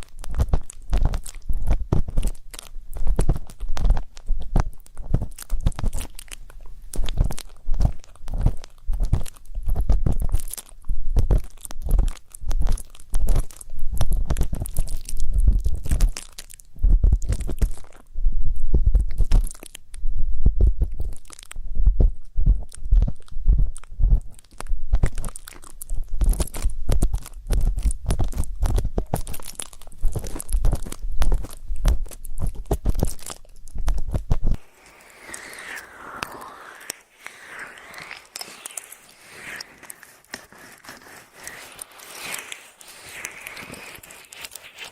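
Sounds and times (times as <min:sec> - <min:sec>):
dull low thumps: 0:18.2 - 0:19.1, 0:20.1 - 0:24.2.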